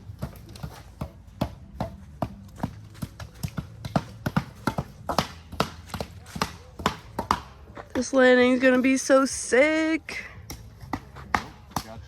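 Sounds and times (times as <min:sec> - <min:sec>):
sharp knocks and taps: 0:00.2 - 0:08.1.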